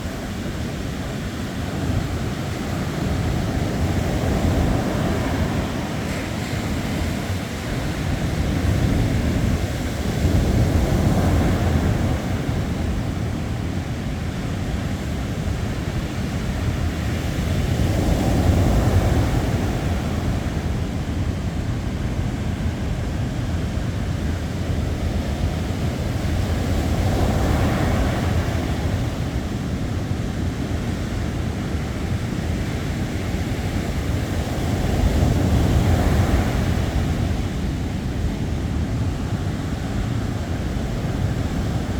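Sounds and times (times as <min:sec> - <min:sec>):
waves breaking: 0:00.0 - 0:14.1.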